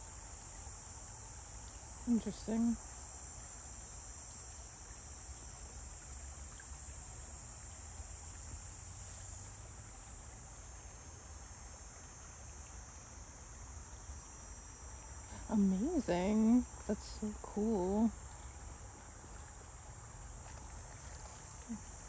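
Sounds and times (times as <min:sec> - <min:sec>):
insect chorus trilling: 0:00.0 - 0:22.0.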